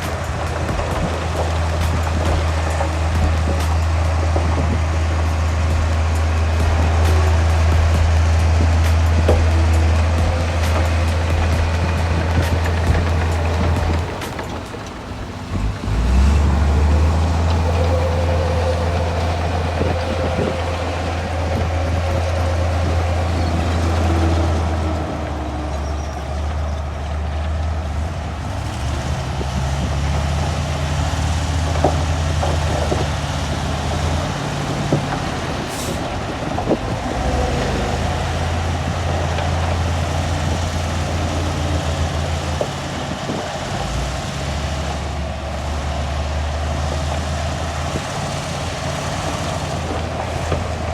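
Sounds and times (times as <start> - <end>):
heavy diesel engine under varying load: 0.0 - 50.9.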